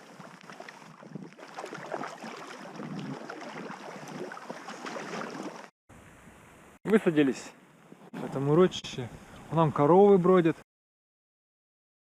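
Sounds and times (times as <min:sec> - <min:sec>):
paddle splashing water: 0:00.0 - 0:05.7.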